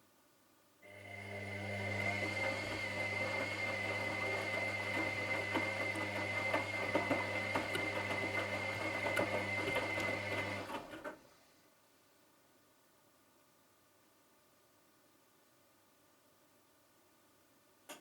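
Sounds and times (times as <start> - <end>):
washing machine running: 0.9 - 11.0.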